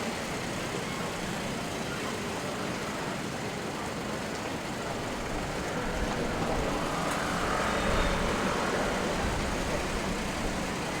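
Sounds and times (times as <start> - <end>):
road vehicles passing: 4.4 - 11.0.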